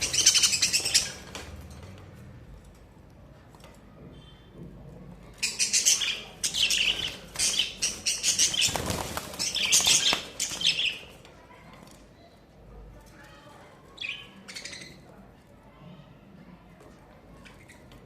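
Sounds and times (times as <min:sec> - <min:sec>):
budgerigars chirping and chattering: 0:00.0 - 0:01.5, 0:05.4 - 0:11.1, 0:14.0 - 0:15.0
wings fluttering: 0:06.8 - 0:11.0.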